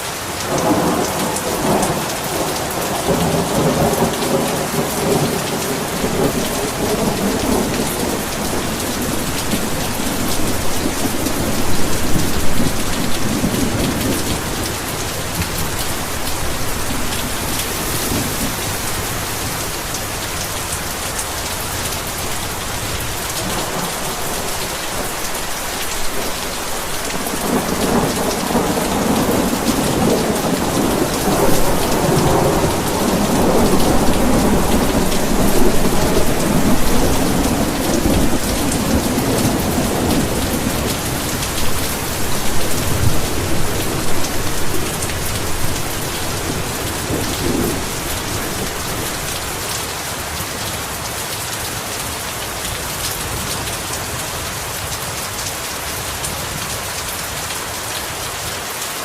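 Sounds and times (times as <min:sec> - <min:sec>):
heavy rain falling: 0:00.0 - 0:59.0
rolling thunder: 0:00.5 - 0:49.7.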